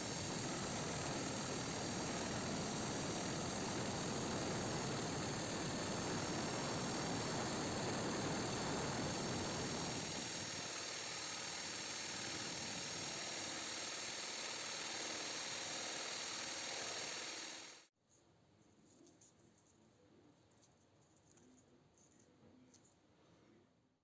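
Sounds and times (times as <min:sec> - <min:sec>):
power tool motor whining: 0:00.0 - 0:17.8.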